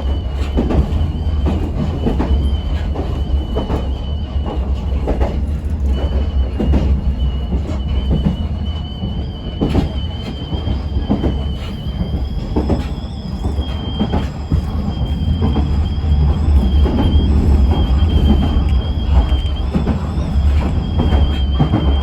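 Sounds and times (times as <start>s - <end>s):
train low rumble: 0.0s - 22.0s
high-pitched squeal: 7.4s - 22.0s.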